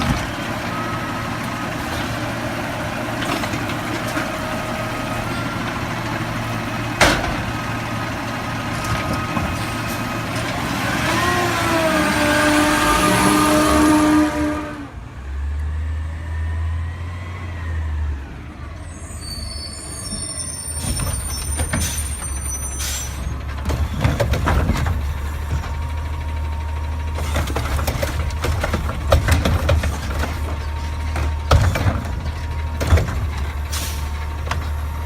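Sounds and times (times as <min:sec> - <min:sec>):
truck engine running: 0:00.0 - 0:15.3, 0:21.2 - 0:35.0
metallic clanks and bangs: 0:06.9 - 0:10.6, 0:23.3 - 0:26.1, 0:27.1 - 0:35.0
high-pitched squeal: 0:18.7 - 0:23.4.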